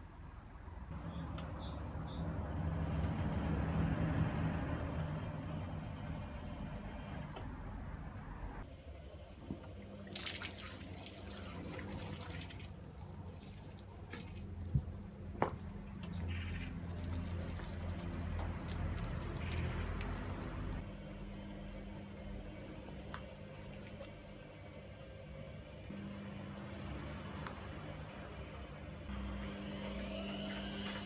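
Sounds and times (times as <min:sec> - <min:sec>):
low motor hum: 0:00.9 - 0:31.0
water sloshing in washing machine: 0:09.2 - 0:20.8, 0:22.5 - 0:24.5.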